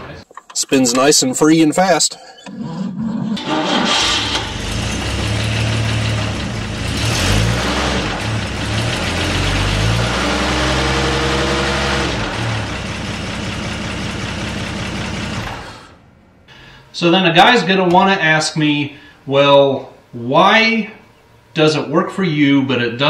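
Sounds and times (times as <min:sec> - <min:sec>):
car engine idling and revving: 0:03.4 - 0:16.0.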